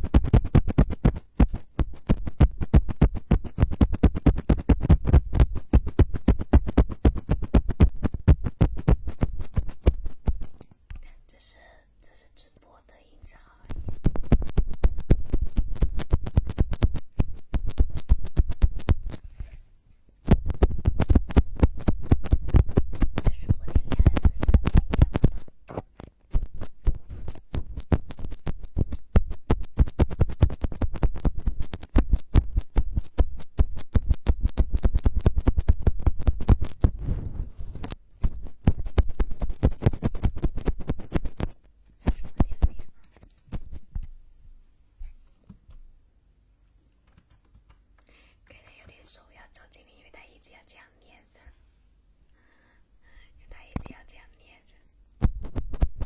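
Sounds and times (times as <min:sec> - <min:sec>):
scratching on microphone: 0:00.0 - 0:10.8, 0:13.2 - 0:19.6, 0:20.2 - 0:44.2, 0:53.4 - 0:56.0.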